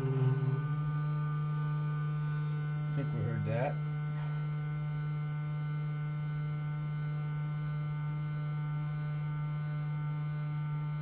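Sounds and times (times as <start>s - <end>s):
printer axis motor humming: 0.0s - 1.1s
faint high steady tones: 0.0s - 2.6s.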